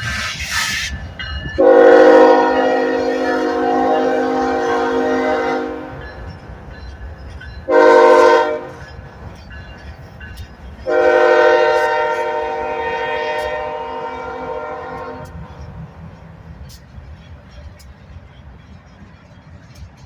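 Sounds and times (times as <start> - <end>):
locomotive engine rumbling: 0.0 - 20.0
locomotive air horn blasts: 1.6 - 6.0, 7.7 - 8.8, 10.8 - 15.4.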